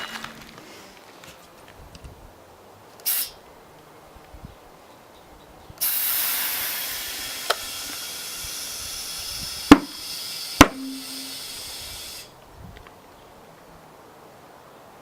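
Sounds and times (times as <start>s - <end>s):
compressed air hissing: 3.0s - 3.4s, 5.8s - 12.4s
small pop: 9.7s - 10.0s, 10.6s - 11.3s
tyre bead banging onto rim: 9.7s - 10.0s, 10.6s - 11.3s.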